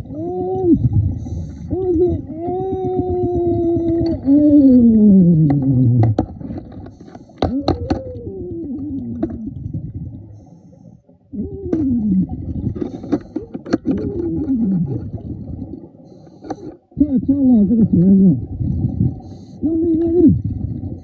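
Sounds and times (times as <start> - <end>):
muffled voice groaning underwater: 0.0 - 1.0, 1.6 - 6.2, 7.4 - 9.6, 11.3 - 12.6, 13.5 - 15.2, 17.0 - 18.6, 19.6 - 20.6.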